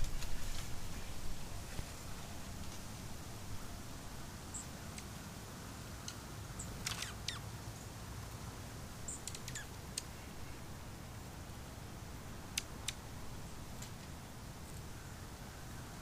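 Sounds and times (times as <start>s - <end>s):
small birds chipping: 6.0s - 7.5s, 9.0s - 10.7s.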